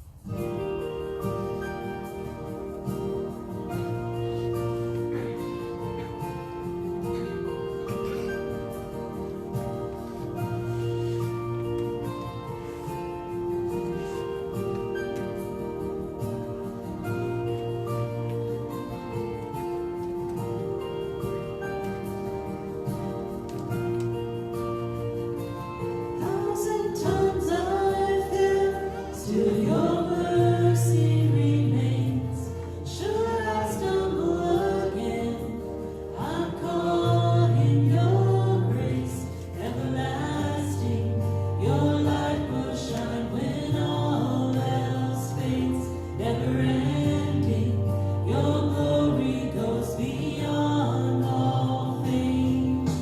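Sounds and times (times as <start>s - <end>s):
instrumental backing: 0.0s - 53.0s
voices singing worship song: 0.0s - 53.0s.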